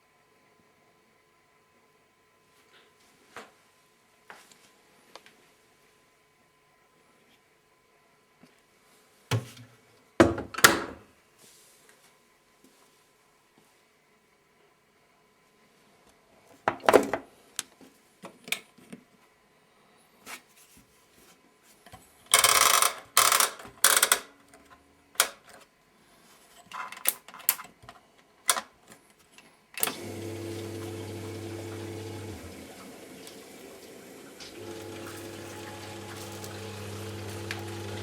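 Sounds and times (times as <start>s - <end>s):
washing machine filling with water: 29.8s - 38.0s.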